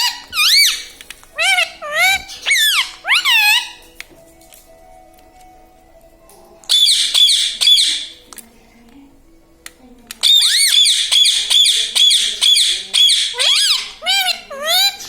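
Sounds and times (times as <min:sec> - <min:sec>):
parakeet screeching: 0:00.0 - 0:03.8, 0:06.7 - 0:08.1, 0:10.2 - 0:15.0.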